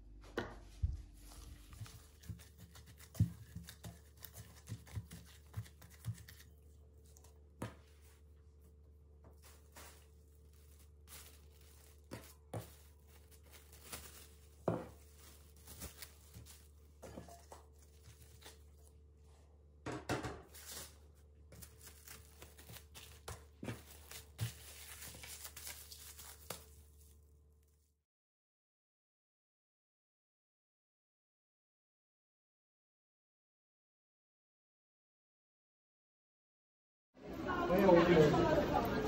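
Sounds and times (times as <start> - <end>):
rustling and crinkling: 0.6 - 19.3, 20.4 - 27.8.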